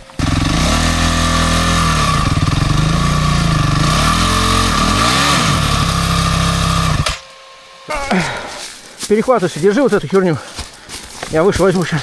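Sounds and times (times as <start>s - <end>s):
dirt bike engine revving: 0.0s - 8.4s.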